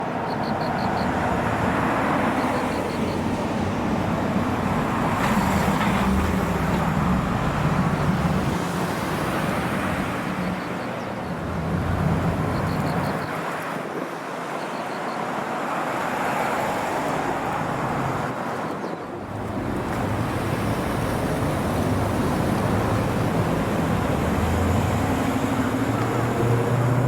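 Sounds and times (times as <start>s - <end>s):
traffic din: 0.0s - 27.0s
car engines running: 19.2s - 27.0s.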